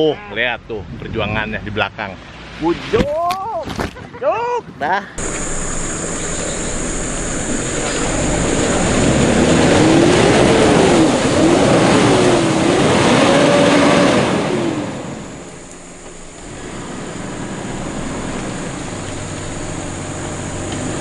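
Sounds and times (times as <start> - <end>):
off-road vehicle engine revving: 5.2 - 21.0.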